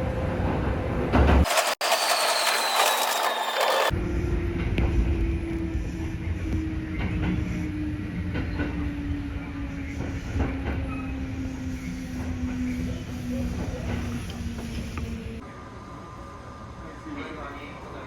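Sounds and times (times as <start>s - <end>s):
electric motor whine: 1.5s - 3.9s
train rumble: 3.9s - 18.0s.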